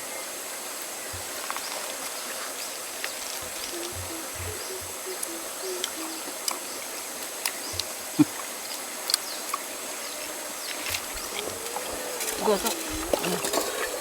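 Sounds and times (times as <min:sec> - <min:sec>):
flowing water: 0:00.0 - 0:14.0
small clicks and ticks: 0:07.2 - 0:09.7.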